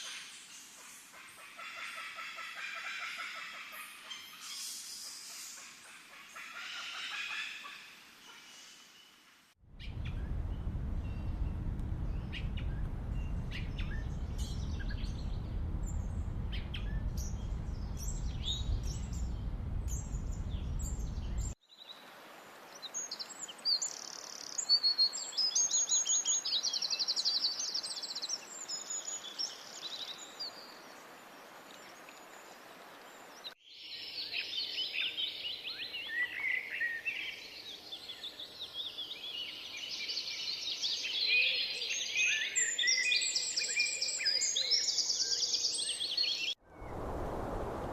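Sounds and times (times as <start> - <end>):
low rumbling noise: 9.6 - 21.6, 46.7 - 47.9
birds chirping and trilling: 9.8 - 22.0, 33.0 - 47.0.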